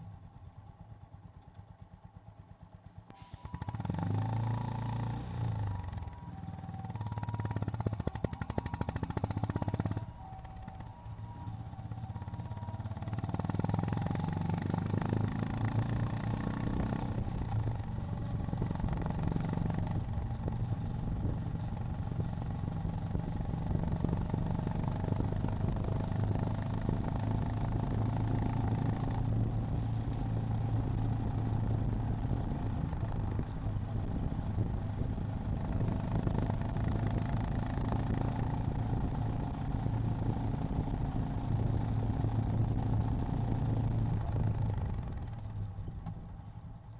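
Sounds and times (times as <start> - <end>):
motorcycle engine running: 12.0 - 46.9.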